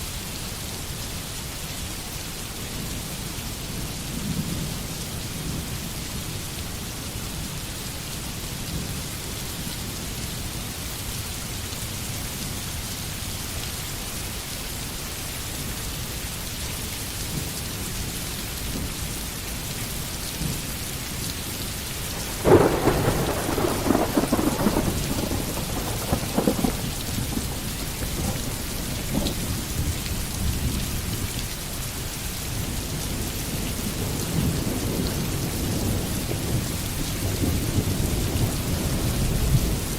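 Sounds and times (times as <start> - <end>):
rain falling in forest: 0.0 - 39.9
thunderclap rumbling: 22.1 - 30.0.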